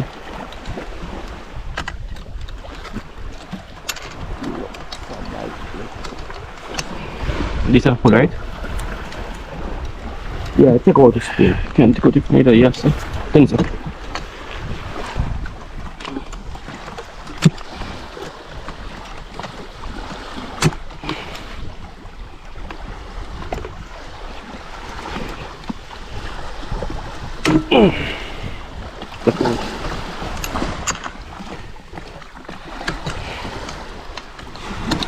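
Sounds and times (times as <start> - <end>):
sea water around boat: 0.0 - 35.0
wind: 0.0 - 35.0
knocks on boat: 12.7 - 19.7, 20.4 - 21.4, 24.9 - 35.0.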